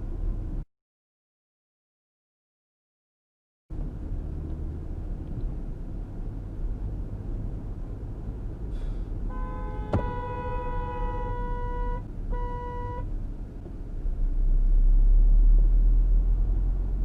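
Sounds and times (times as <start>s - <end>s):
car road and engine rumble: 0.0s - 0.7s, 3.7s - 17.0s
car horn blast: 9.3s - 13.1s.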